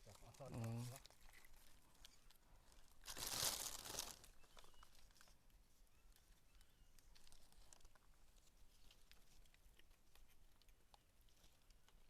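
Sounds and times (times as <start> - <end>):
crinkling rustle: 0.0 - 12.0.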